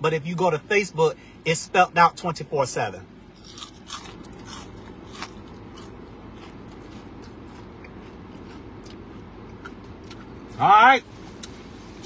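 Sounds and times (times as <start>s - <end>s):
steady low hum: 0.0s - 12.0s
chewing crunchy food: 3.3s - 10.5s.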